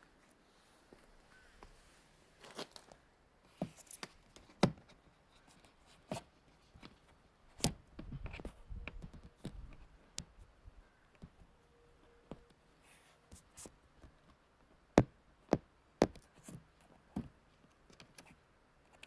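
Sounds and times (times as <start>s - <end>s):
clicks and knocks of handling: 15.5s - 19.0s.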